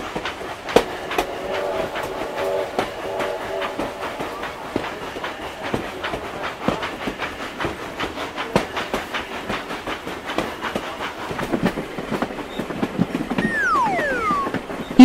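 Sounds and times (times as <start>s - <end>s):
tone gliding down in pitch: 0.7s - 5.2s, 13.4s - 15.0s
train wheels clattering over rail joints: 4.8s - 13.4s.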